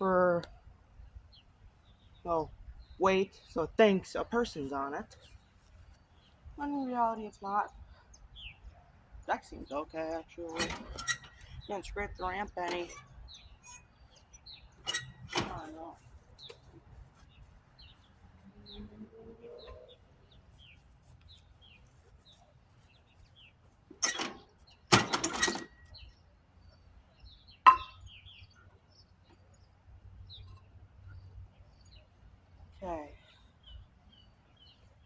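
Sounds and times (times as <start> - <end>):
small birds chirping: 0.1 - 35.0
loud clanks: 24.0 - 25.8.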